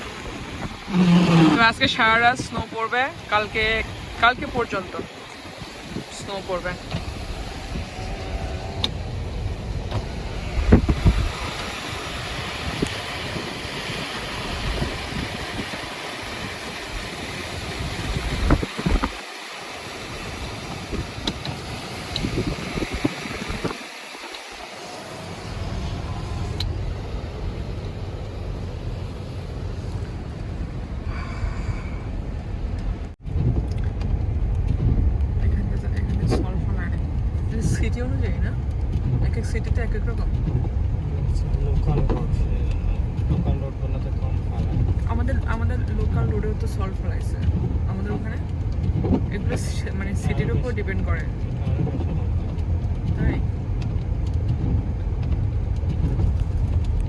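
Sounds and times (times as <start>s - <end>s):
tyre and road noise: 0.0s - 57.0s
car bumps: 5.8s - 11.8s.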